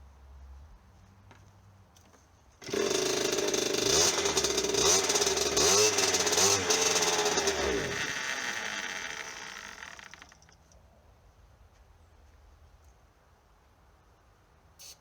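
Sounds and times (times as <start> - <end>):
dirt bike engine revving: 2.6 - 10.4.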